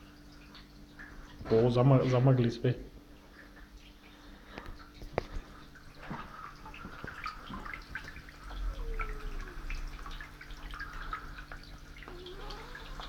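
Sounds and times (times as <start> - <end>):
low mains hum: 0.0 - 13.0
mist maker bubbling in water: 2.9 - 13.0.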